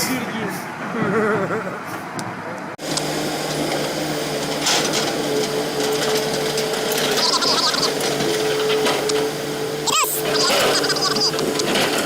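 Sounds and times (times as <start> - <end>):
machine humming: 2.8 - 12.0.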